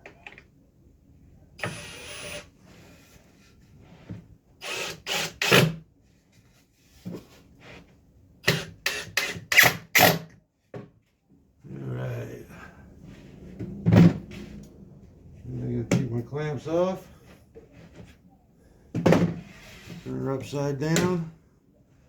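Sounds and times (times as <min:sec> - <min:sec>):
power drill driving screws into wood: 0:01.6 - 0:02.5, 0:04.6 - 0:05.8, 0:08.4 - 0:10.3.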